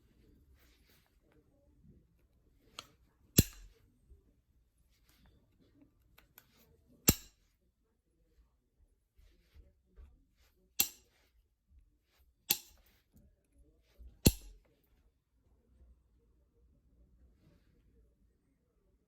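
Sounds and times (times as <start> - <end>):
stone clicks with ring: 2.7 - 3.8, 7.1 - 7.4, 10.8 - 11.1, 12.5 - 12.9, 14.2 - 14.6.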